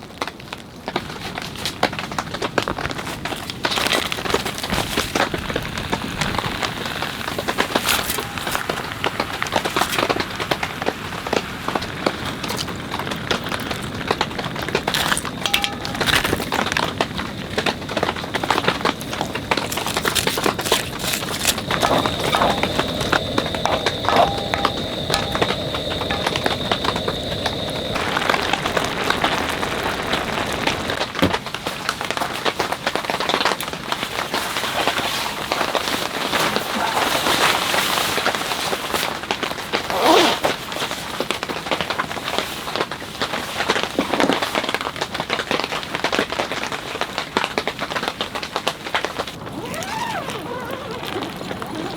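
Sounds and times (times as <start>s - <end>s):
heavy rain on tent fabric: 0.0s - 51.9s
ringing clink: 15.4s - 16.4s, 22.3s - 27.0s.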